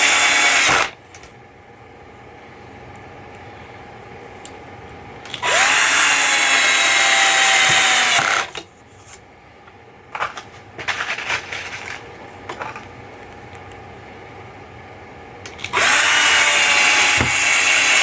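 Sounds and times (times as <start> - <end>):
power drill spinning: 0.0 - 1.0, 5.4 - 8.6, 15.6 - 18.0.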